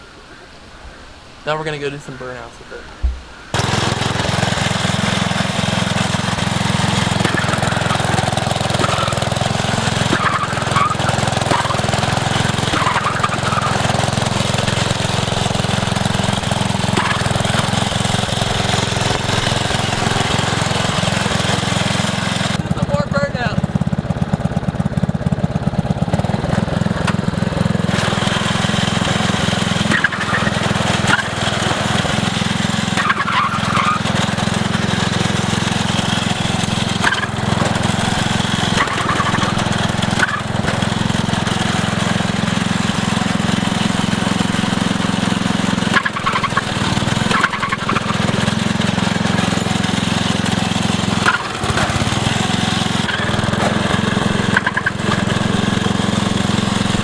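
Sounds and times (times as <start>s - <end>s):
lawn tractor engine running hard: 3.5s - 57.0s.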